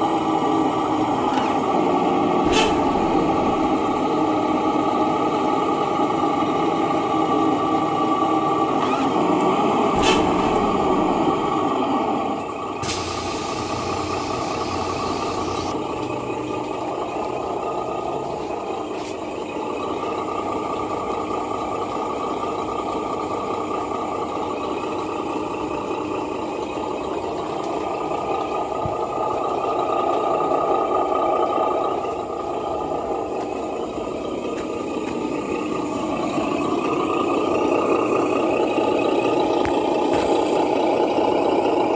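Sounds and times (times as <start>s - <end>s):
diesel truck engine running: 0.0s - 41.9s
air brake hiss: 2.4s - 3.0s, 10.0s - 10.5s, 12.8s - 15.7s.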